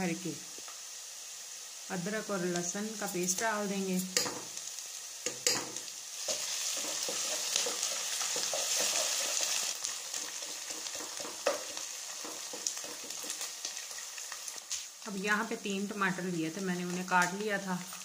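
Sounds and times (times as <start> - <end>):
onions sizzling in a pot: 0.0 - 18.0
wooden spoon stirring and scraping: 6.2 - 14.2.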